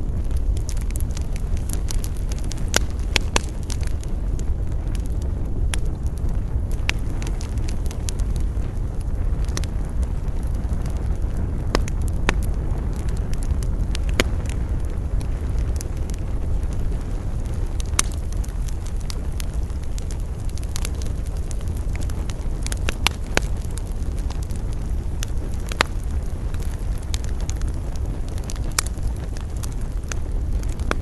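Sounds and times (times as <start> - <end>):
campfire crackling and popping: 0.0 - 31.0
low rumble of wind: 0.0 - 31.0.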